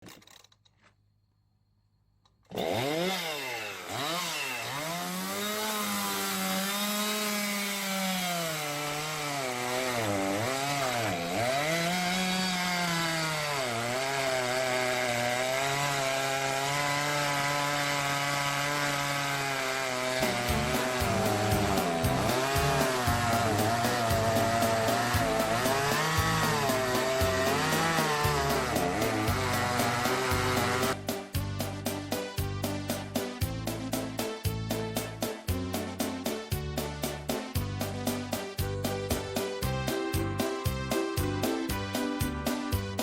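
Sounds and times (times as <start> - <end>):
excavator engine and hydraulic axe: 2.3 - 31.2.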